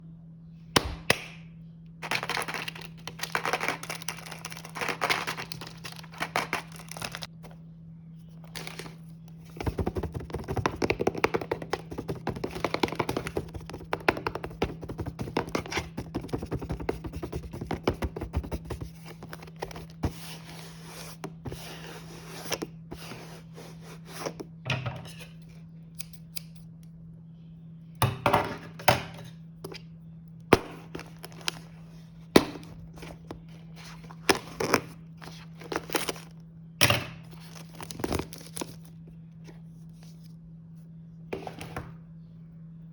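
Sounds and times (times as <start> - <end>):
steady low hum: 0.0 - 42.9
plastic packaging crinkling and tearing: 2.0 - 7.4, 32.8 - 36.3.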